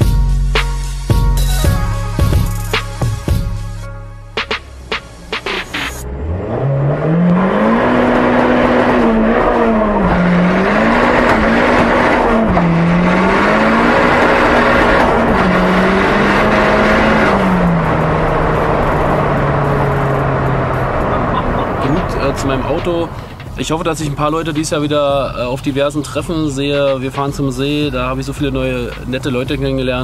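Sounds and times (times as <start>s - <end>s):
car engine accelerating hard: 4.6s - 30.0s.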